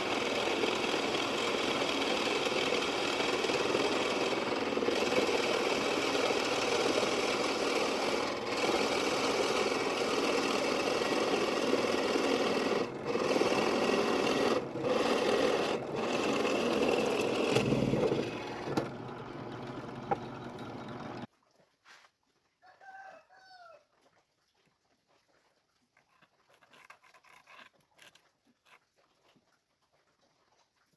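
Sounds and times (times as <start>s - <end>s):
power tool cutting wood: 0.0s - 21.3s.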